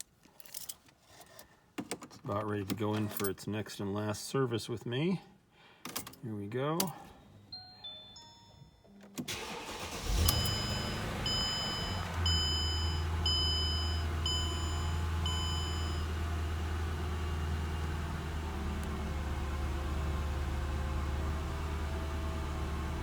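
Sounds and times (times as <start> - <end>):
car engine starting and idling: 9.2 - 23.0
warning chime beeping: 10.0 - 16.1.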